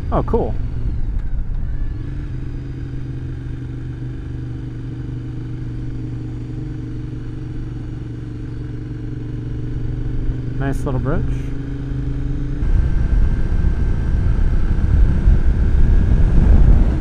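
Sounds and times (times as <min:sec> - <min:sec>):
motorcycle engine cruising: 0:00.0 - 0:17.0
road and wind noise: 0:00.0 - 0:17.0.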